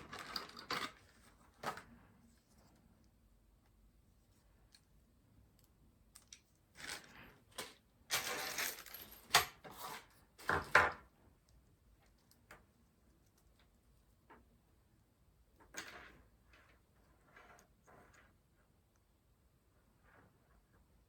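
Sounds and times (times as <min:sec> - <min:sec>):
rustling and scraping of parts: 0:00.0 - 0:03.1, 0:06.2 - 0:11.0.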